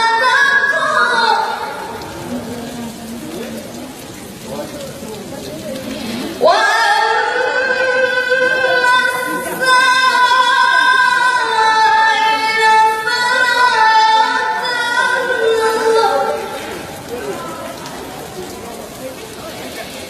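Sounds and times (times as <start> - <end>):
girl reciting melodically: 0.0 - 1.9, 6.4 - 16.6.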